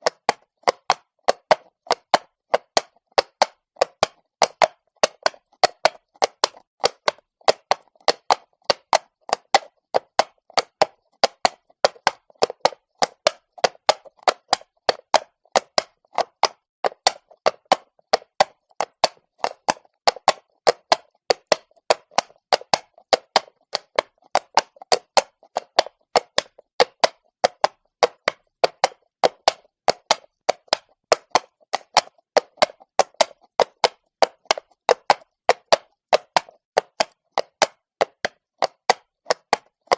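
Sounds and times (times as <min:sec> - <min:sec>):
horse hooves on stone: 0:00.0 - 0:39.9.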